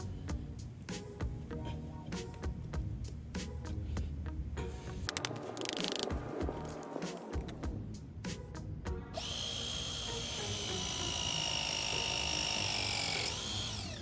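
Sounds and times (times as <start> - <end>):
sharp clicks: 5.1 - 6.2
power tool motor whining: 9.2 - 14.0.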